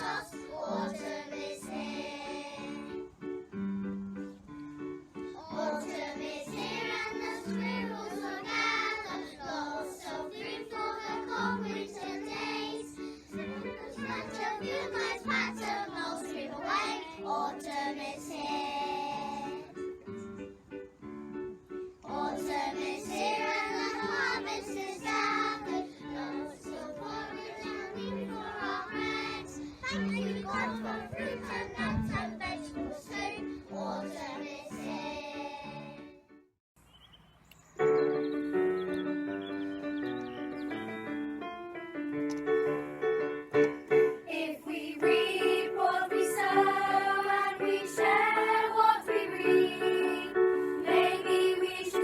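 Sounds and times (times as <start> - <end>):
children singing: 0.0 - 3.1, 5.4 - 19.8, 22.0 - 36.1, 44.0 - 52.0
instrumental backing music: 0.0 - 36.4, 37.8 - 51.9.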